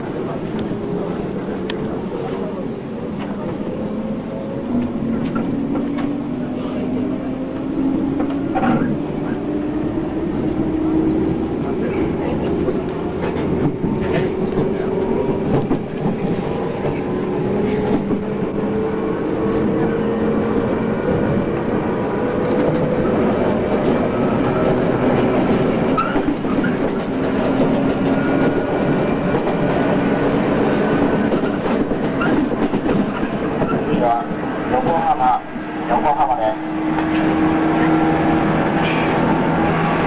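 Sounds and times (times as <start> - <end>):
train rumble: 0.0 - 40.0
wheels clicking over rail joints: 22.4 - 34.0.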